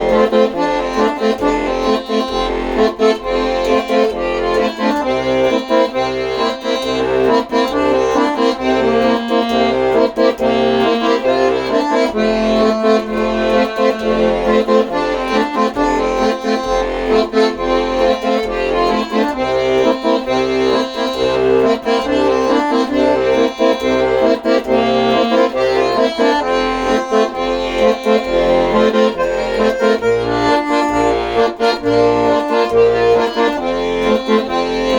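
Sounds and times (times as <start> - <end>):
accordion melody: 0.0 - 34.9
pulsing bass: 0.0 - 34.9.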